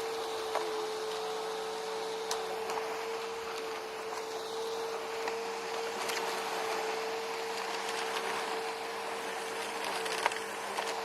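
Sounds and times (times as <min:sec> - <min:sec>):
vacuum cleaner running: 0:00.0 - 0:11.0
debris clicking in vacuum: 0:09.4 - 0:11.0.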